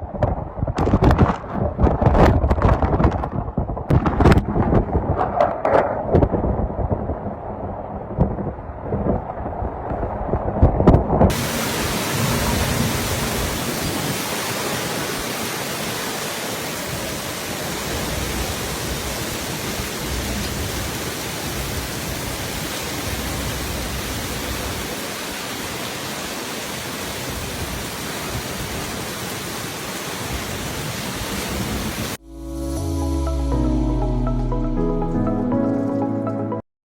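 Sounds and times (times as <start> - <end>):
wind gusting on microphone: 0.0 - 32.2
driving wind and rain hiss: 6.0 - 32.2
music: 32.2 - 36.6.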